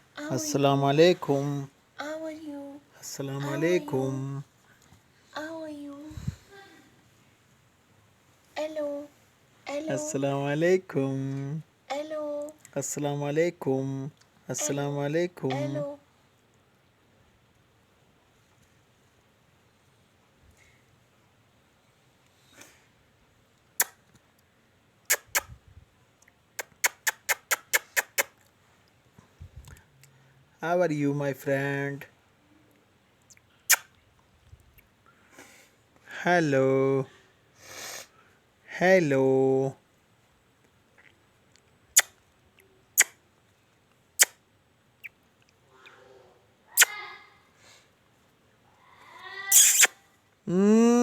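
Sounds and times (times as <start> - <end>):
parrot kiss-smack sounds: 23.8 - 24.1, 25.1 - 25.6, 26.6 - 28.4, 33.7 - 33.9, 42.0 - 42.2, 43.0 - 43.2, 44.2 - 44.4, 46.8 - 47.0, 49.5 - 50.0
parrot voicing mwah: 46.7 - 47.2, 49.3 - 50.0.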